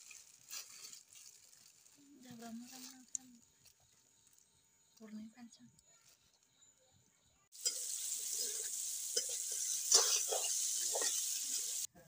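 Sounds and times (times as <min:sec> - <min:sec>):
chicken sizzling in oil: 0:07.6 - 0:11.9
spatula scraping a pan: 0:07.6 - 0:11.9.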